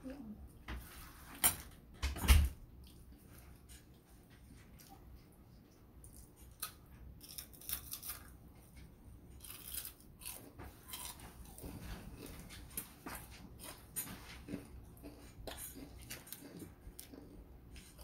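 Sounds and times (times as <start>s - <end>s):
crispy skin crunching and chewing: 6.0s - 18.0s.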